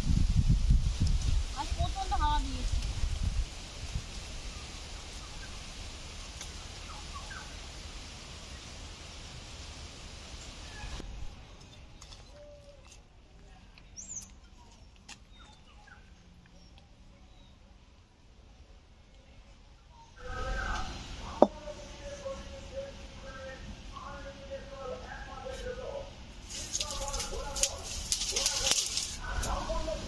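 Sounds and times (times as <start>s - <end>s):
steady hiss: 0.0s - 11.4s, 20.2s - 25.0s
birds chirping: 6.5s - 8.8s, 10.4s - 12.9s, 13.7s - 17.7s.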